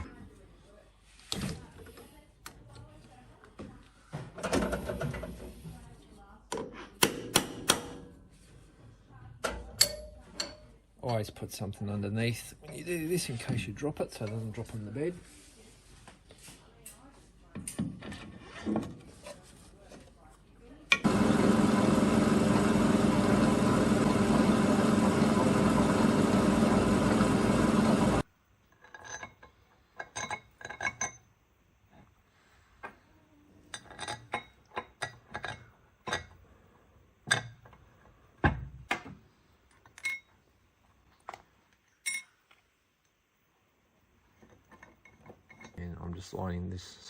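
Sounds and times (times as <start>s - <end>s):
metallic clinks of bolts and tools: 39.8s - 40.4s.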